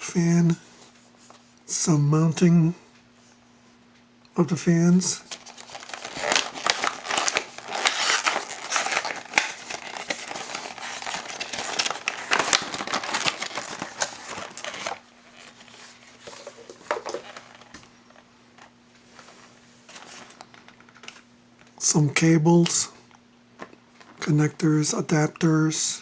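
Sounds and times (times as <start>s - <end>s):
plastic packaging crinkling: 5.2s - 21.2s, 23.6s - 24.2s.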